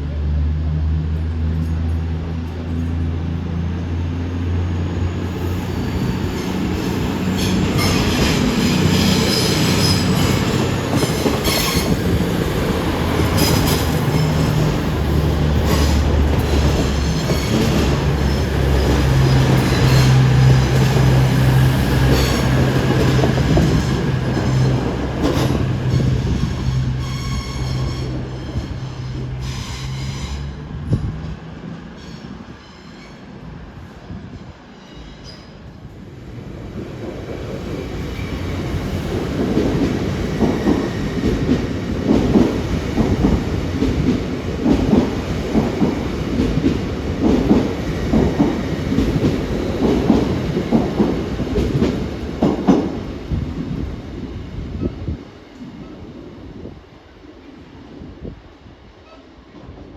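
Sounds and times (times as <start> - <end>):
train engine drone: 0.0 - 59.9
train wheels clattering on rails: 5.6 - 31.4, 36.8 - 53.8.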